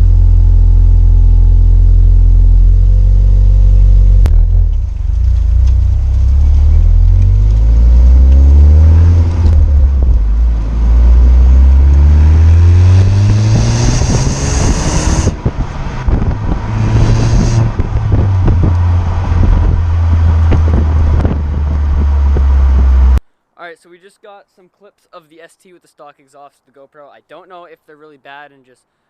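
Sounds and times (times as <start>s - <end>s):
car exhaust accelerating: 0.0s - 23.2s
wind buffeting microphone: 8.3s - 23.2s.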